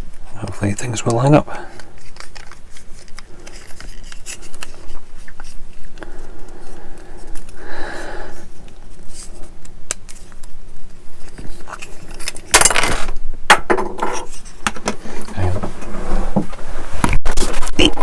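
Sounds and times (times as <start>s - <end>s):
plastic parts clicking and scraping: 0.0s - 7.6s, 8.6s - 13.2s.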